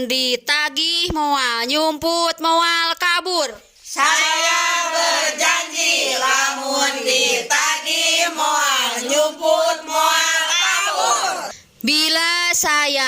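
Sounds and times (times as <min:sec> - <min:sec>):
group reciting in unison: 0:03.8 - 0:11.6.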